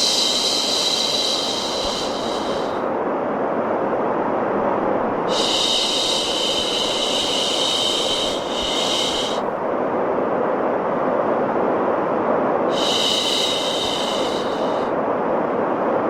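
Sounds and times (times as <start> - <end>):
white noise hiss: 0.0 - 16.0
woman shushing: 5.3 - 9.4.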